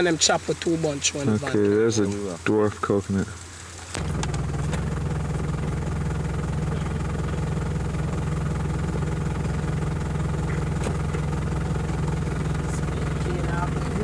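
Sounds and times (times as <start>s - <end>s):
low engine drone: 4.0s - 14.0s.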